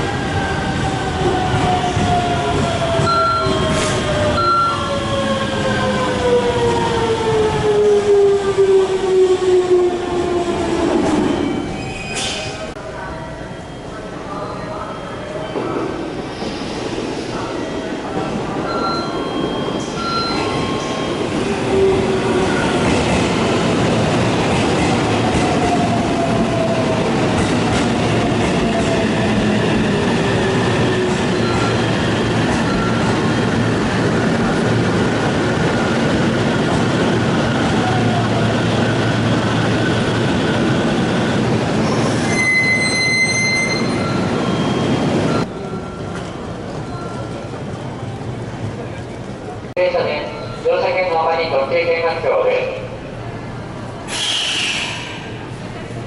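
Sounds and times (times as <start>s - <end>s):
electric train rolling rumble: 0.0s - 49.7s
high-pitched wheel squeal: 41.9s - 44.9s.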